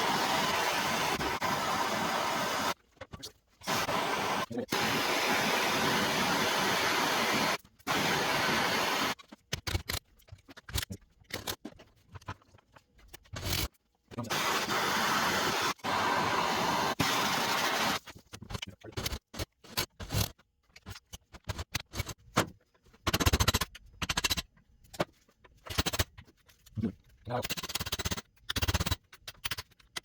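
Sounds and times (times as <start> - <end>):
heating tool hissing: 0.0 - 2.8, 3.7 - 9.2, 14.3 - 18.0.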